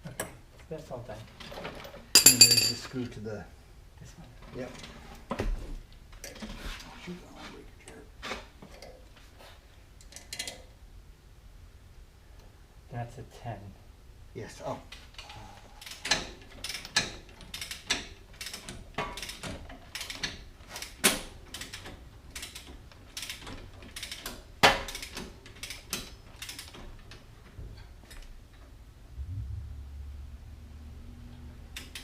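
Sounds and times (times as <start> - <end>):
low steady hum: 28.5 - 31.8.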